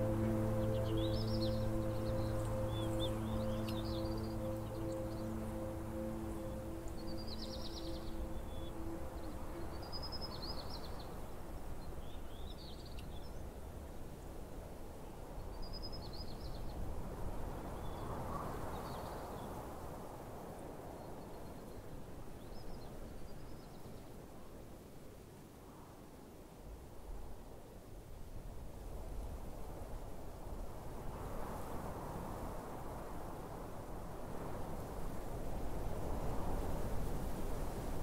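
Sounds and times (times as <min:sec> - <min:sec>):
held music chord: 0:00.0 - 0:11.0
outdoor background hiss: 0:00.0 - 0:38.0.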